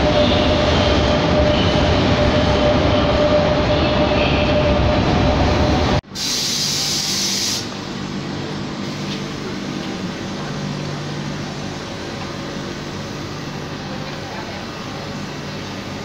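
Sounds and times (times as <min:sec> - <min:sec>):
electric train rumbling: 0:00.0 - 0:16.0
hiss: 0:06.1 - 0:07.7.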